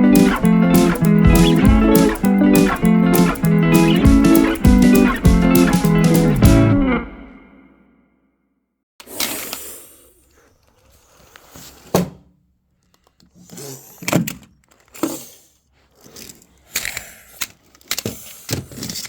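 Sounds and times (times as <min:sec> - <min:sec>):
toy cars clattering together: 0:16.0 - 0:19.0.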